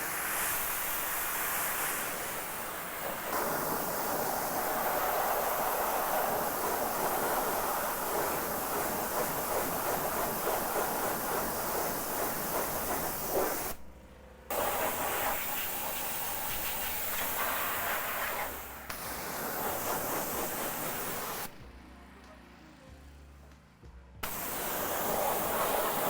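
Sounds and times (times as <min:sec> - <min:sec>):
high-pressure water spray hissing: 0:00.0 - 0:13.8, 0:14.5 - 0:21.6, 0:24.2 - 0:26.0.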